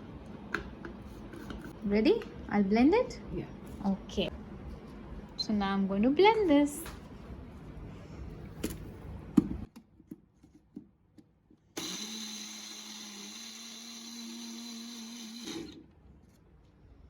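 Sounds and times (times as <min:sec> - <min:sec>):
electric blender running: 0:11.8 - 0:15.8.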